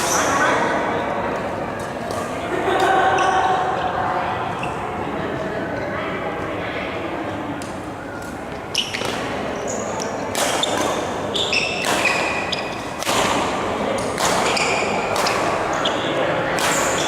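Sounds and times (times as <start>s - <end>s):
racket hitting shuttlecock: 7.6s - 17.0s
shoes squeaking on court floor: 8.0s - 13.3s, 14.1s - 17.0s.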